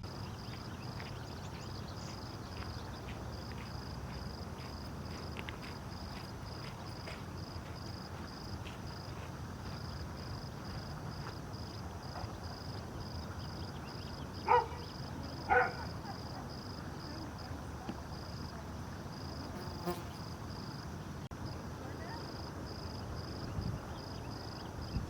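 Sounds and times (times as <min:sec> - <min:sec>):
insect chirping: 0:00.0 - 0:25.0
dog barking: 0:14.4 - 0:14.9, 0:15.5 - 0:16.2.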